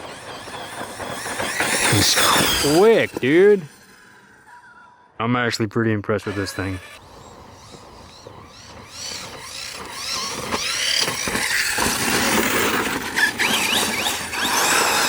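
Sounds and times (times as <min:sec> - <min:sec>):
rc car motor whine: 0:00.0 - 0:04.6, 0:06.3 - 0:15.0
tyre noise: 0:07.0 - 0:15.0.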